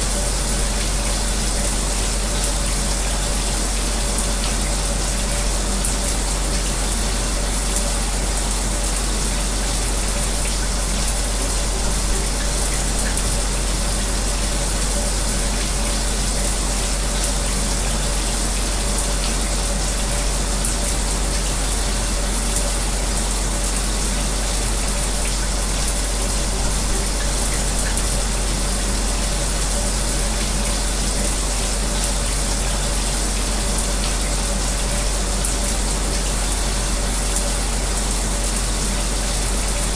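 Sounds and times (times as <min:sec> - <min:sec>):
electric fan humming: 0:00.0 - 0:39.9
shower water running: 0:00.0 - 0:39.9.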